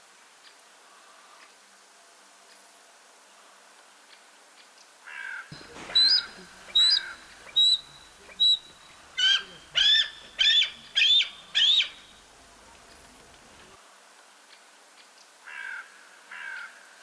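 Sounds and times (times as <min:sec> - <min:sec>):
bird calling sharply: 0:05.5 - 0:13.8.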